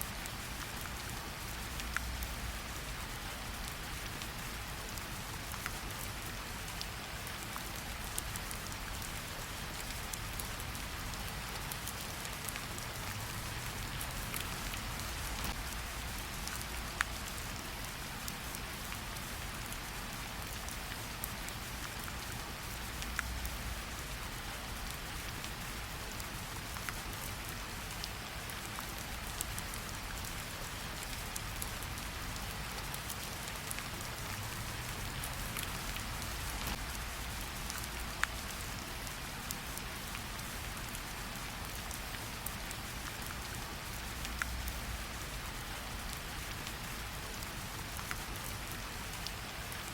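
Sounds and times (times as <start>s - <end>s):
rain pattering on leaves: 0.0s - 49.9s
raindrops ticking: 7.6s - 19.8s, 24.8s - 45.2s.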